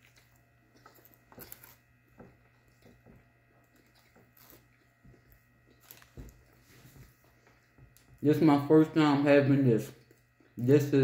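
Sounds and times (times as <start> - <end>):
soft chewing crunches: 0.0 - 8.2, 9.8 - 11.0.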